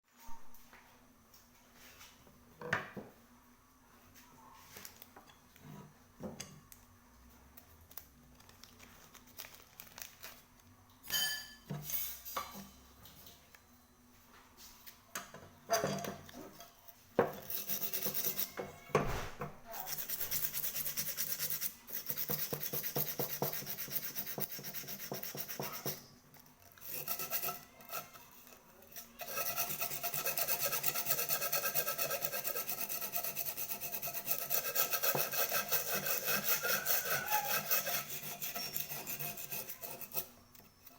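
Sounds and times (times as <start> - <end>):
rubbing strokes on metal: 17.2 - 18.7, 19.7 - 26.1, 26.8 - 40.9.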